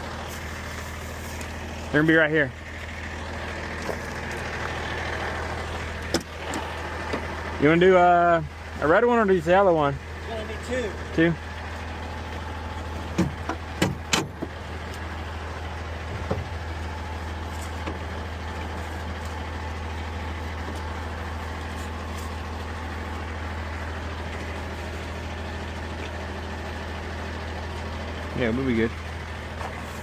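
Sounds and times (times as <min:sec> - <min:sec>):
heavy vehicle engine idling: 0:00.0 - 0:30.0
sharp knocks: 0:13.1 - 0:14.5.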